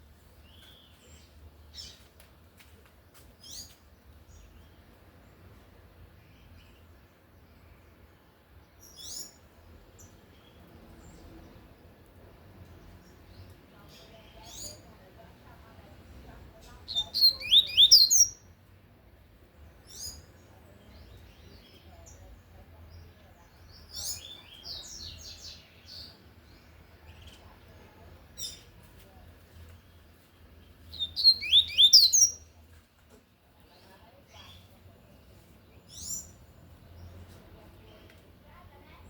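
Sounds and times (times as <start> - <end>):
songbird singing high phrases: 6.2 - 11.9, 12.8 - 15.0, 16.8 - 18.5, 19.8 - 28.8, 29.6 - 32.6, 34.3 - 37.2
soft bird calls: 16.6 - 18.5, 19.8 - 32.8.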